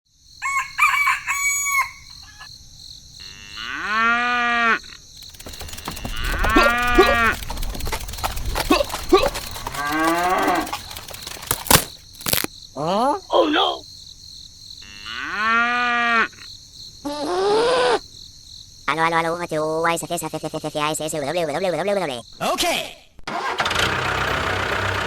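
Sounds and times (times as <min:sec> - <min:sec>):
cattle mooing: 0:09.6 - 0:10.7.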